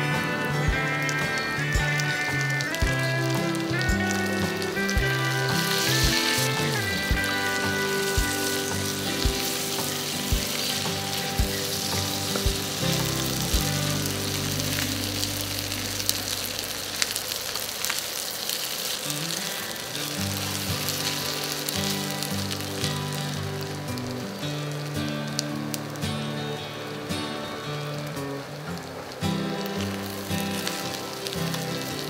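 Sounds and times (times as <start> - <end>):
background music: 0.0 - 18.0, 19.2 - 32.0
meat sizzling in a pan: 0.0 - 32.0
spatula stirring in pan: 4.8 - 15.7.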